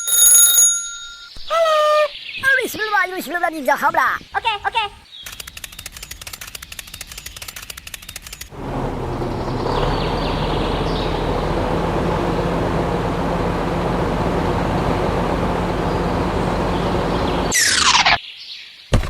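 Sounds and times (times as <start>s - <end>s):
motor running with low hum: 8.7s - 17.6s.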